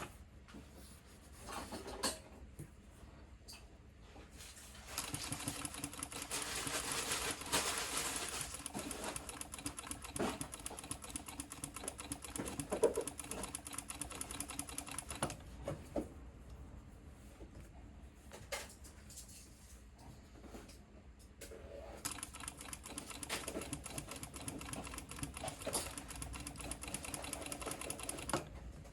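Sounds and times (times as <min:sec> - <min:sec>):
sewing machine running fast: 0:04.8 - 0:15.4, 0:22.0 - 0:28.5.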